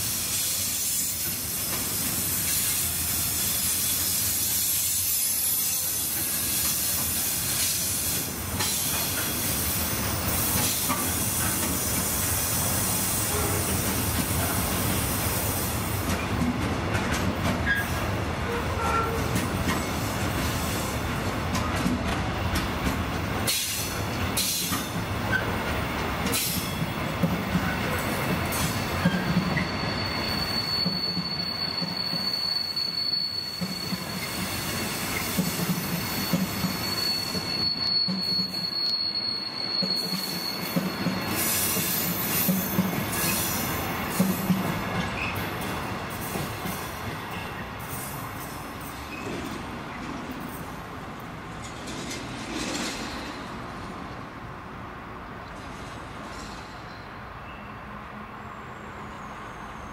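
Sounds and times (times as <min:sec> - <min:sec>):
train wheels rumbling on rail: 0:00.0 - 0:59.9
wheel squeals: 0:17.6 - 0:20.1, 0:27.6 - 0:44.4, 0:45.0 - 0:45.5, 0:48.8 - 0:49.5
train knocks: 0:39.7 - 0:47.0.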